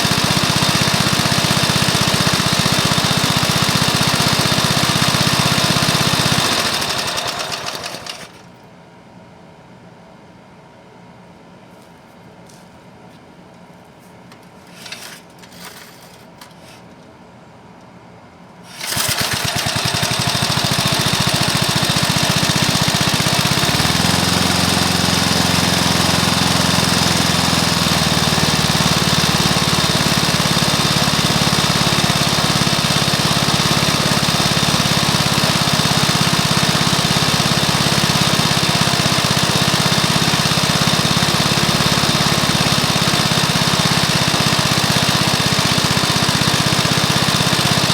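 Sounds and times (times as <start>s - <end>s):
lawnmower engine running: 0.0s - 8.5s, 18.7s - 47.9s.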